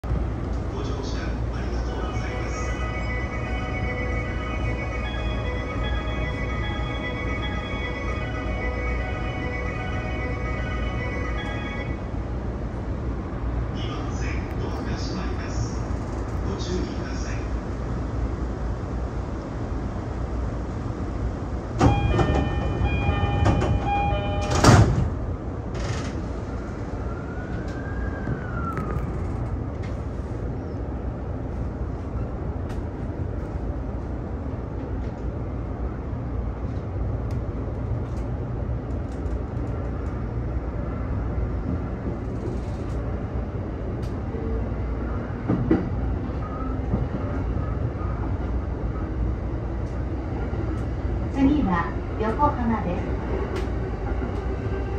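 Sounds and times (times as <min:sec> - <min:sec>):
train running rumble: 0:00.0 - 0:27.0, 0:27.6 - 0:54.9
electronic door chime: 0:21.9 - 0:24.6.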